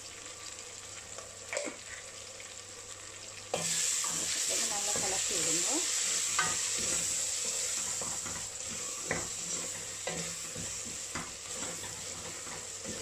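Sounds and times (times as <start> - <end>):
spices sizzling in oil: 0.0 - 13.0
wooden spoon scraping a pot: 3.6 - 13.0.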